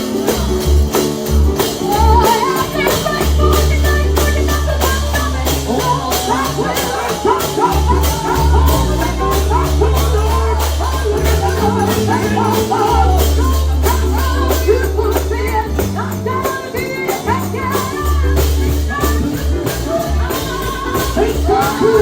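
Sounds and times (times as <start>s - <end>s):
heavy bass line: 0.0s - 22.0s
tambourine shaking: 0.0s - 22.0s
voices singing gospel: 0.0s - 22.0s.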